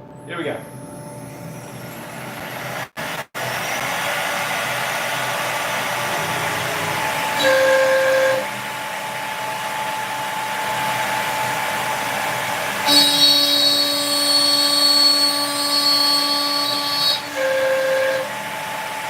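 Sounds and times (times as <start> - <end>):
dust extractor running: 3.4 - 19.0
loud steady tone: 3.4 - 19.0
router spindle running: 3.4 - 19.0.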